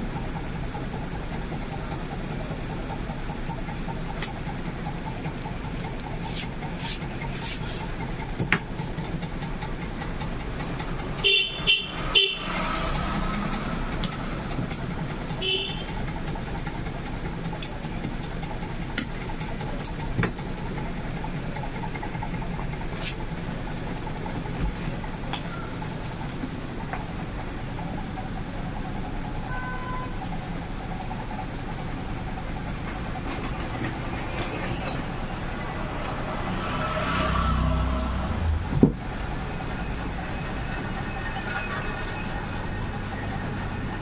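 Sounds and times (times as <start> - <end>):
street traffic: 0.0 - 44.0
vehicle horn toots: 11.2 - 12.6, 15.4 - 16.0, 29.5 - 30.2.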